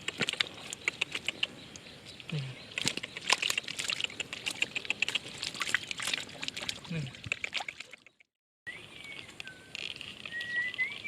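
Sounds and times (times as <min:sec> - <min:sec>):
hands splashing in muddy water: 0:02.8 - 0:08.1.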